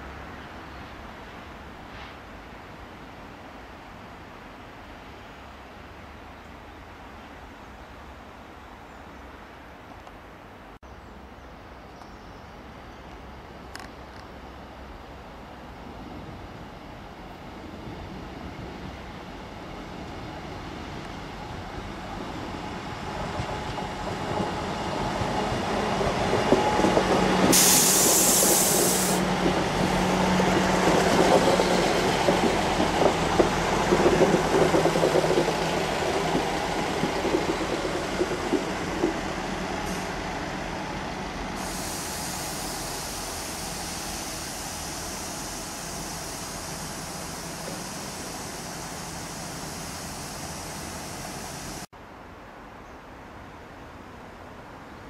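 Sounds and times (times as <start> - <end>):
train passing: 14.8 - 51.9
short sharp hiss: 27.5 - 29.2, 41.6 - 51.9.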